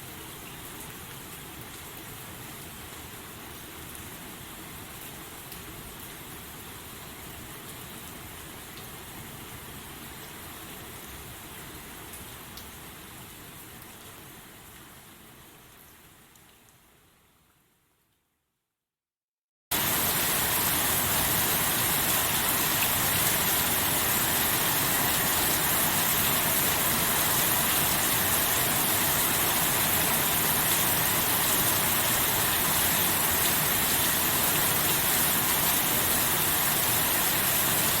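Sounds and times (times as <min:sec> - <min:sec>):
heavy steady rain: 0:00.0 - 0:18.1, 0:19.7 - 0:38.0.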